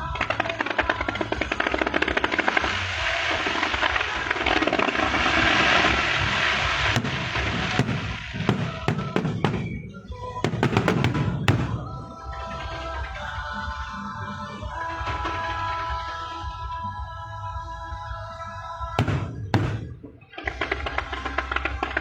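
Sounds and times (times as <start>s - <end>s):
fireworks crackling: 0.0s - 12.2s, 19.0s - 22.0s
music playing: 0.0s - 22.0s
fireworks bangs: 0.2s - 12.2s, 19.0s - 22.0s.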